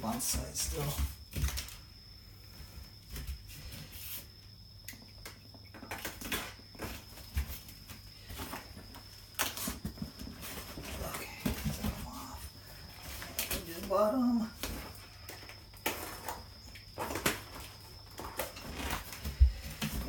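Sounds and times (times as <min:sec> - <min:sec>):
cardboard scraping and rustling: 0:06.1 - 0:13.9, 0:15.8 - 0:20.0.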